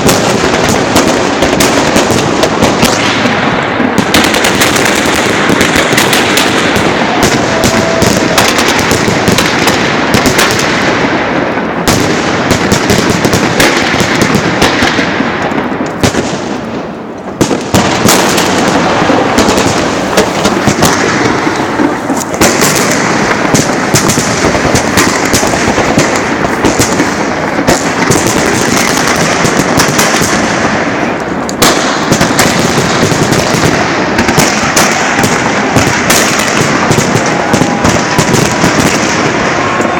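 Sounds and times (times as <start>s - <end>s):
fireworks rapid loud bangs: 0.0s - 39.9s
loud firework blast: 0.0s - 39.9s.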